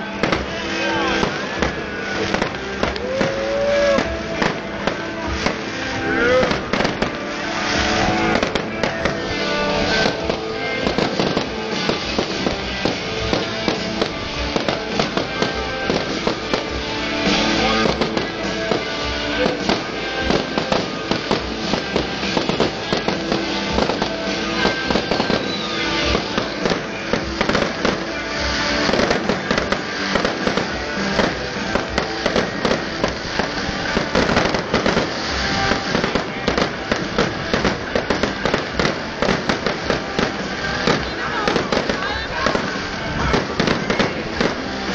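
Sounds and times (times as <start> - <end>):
fireworks bangs and crackles: 0.0 - 44.9
music playing: 0.0 - 44.9.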